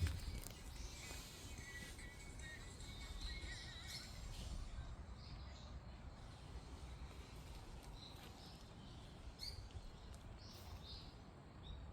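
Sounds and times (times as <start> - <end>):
steady low rumble: 0.0 - 0.8.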